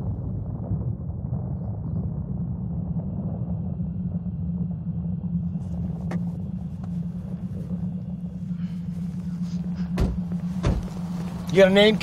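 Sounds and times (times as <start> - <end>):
car engine and road noise: 3.0 - 12.0.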